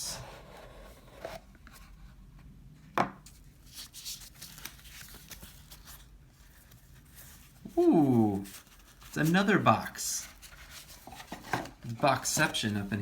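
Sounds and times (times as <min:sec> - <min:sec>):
packaging rustling and scraping: 0:03.2 - 0:13.0.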